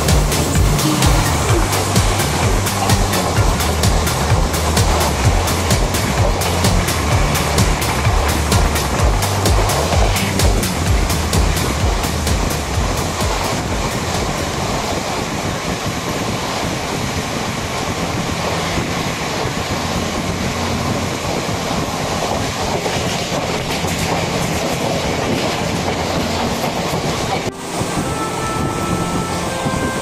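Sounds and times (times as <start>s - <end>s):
train wheels rumbling on rail: 0.0s - 30.0s
wind rushing: 0.0s - 30.0s
clickety-clack over rail joints: 0.1s - 14.6s.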